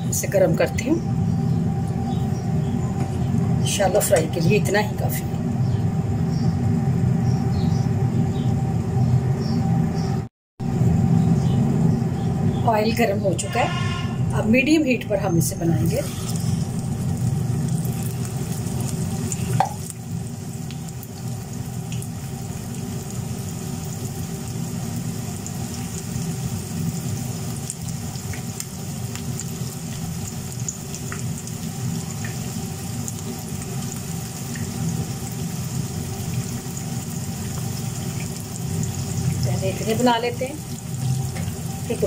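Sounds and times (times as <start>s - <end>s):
meat sizzling in oil: 15.8s - 42.0s
oil crackling and spitting: 16.0s - 39.4s.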